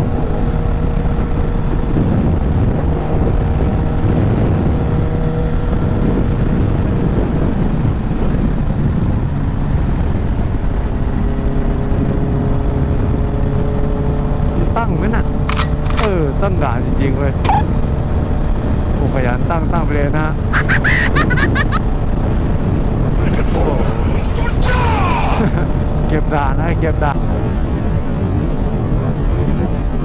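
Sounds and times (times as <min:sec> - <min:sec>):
faint motorcycle engine hum: 0:00.0 - 0:20.8
wind buffeting microphone: 0:00.0 - 0:30.0.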